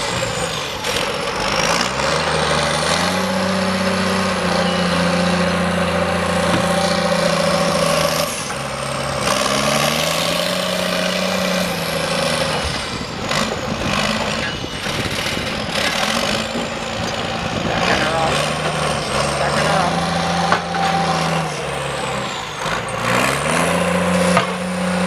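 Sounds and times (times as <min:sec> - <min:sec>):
heavy diesel engine under load: 0:00.0 - 0:25.0
sharp knocks: 0:06.4 - 0:07.2.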